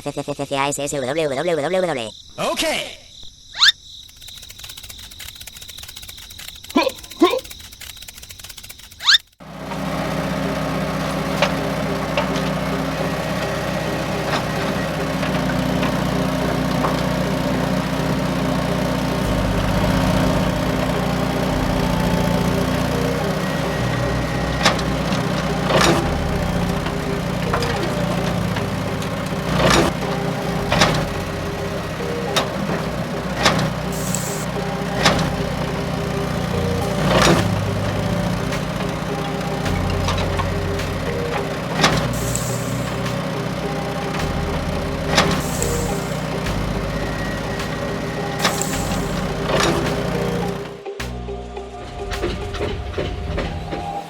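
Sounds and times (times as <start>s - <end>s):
small motor humming: 4.2s - 54.0s
sharp clicks and knocks: 10.9s - 54.0s.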